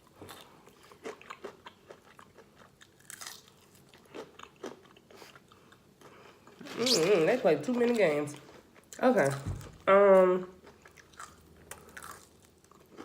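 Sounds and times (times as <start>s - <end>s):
chewing: 0.2s - 7.1s, 10.6s - 13.0s
fried chicken breading crunching: 2.2s - 4.8s.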